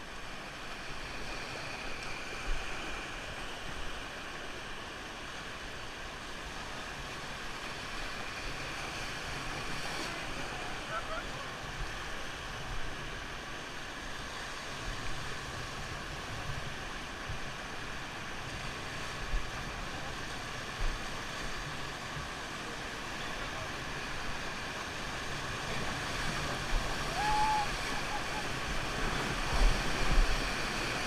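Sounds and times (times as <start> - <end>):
rushing river water: 0.0 - 31.0.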